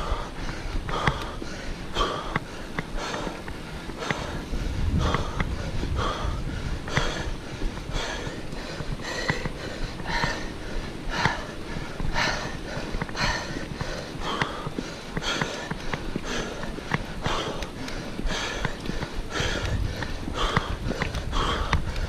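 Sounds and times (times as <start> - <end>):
person breathing heavily: 0.0 - 22.0
low rumble: 3.6 - 13.6.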